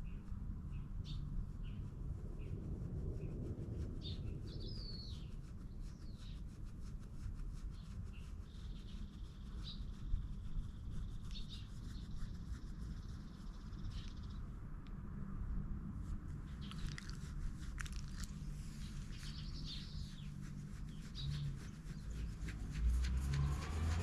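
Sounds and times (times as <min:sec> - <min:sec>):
small birds chirping: 0:00.0 - 0:03.4, 0:04.0 - 0:06.8, 0:07.6 - 0:14.6, 0:16.3 - 0:24.0
light scratchy rustling: 0:00.0 - 0:14.6, 0:15.7 - 0:24.0.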